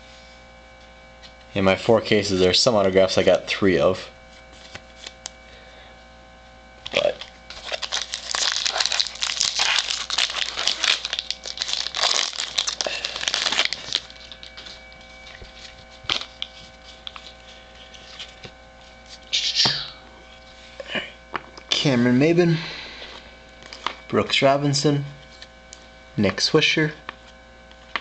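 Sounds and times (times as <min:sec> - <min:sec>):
cards being handled: 0:04.3 - 0:05.3, 0:06.9 - 0:19.7
foil wrapper tearing and crinkling: 0:07.0 - 0:18.5.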